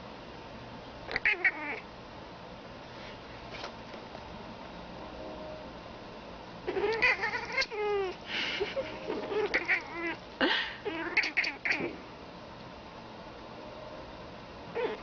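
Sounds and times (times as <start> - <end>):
cat chirping and chattering: 1.1 - 1.8, 6.6 - 10.2, 10.8 - 12.0, 14.7 - 15.0.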